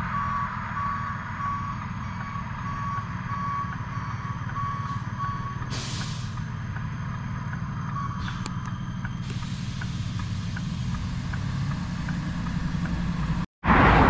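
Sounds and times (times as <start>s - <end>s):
truck reversing alarm beeping: 0.0s - 13.4s
low idling engine: 0.0s - 13.5s
loud air hiss: 5.7s - 6.4s.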